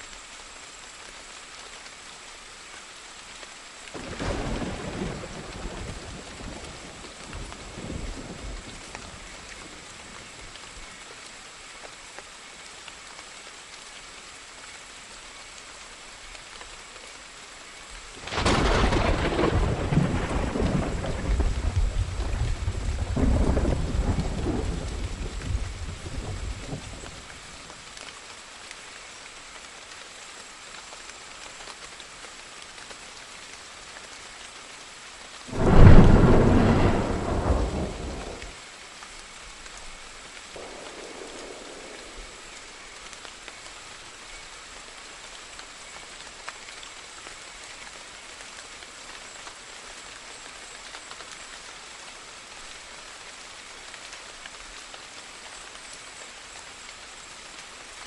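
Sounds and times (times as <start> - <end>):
steady rain: 0.0 - 58.0
rolling thunder: 18.2 - 26.9, 35.5 - 38.6, 40.6 - 42.5
thunderclap: 18.2 - 26.9, 35.5 - 38.6, 40.6 - 42.4.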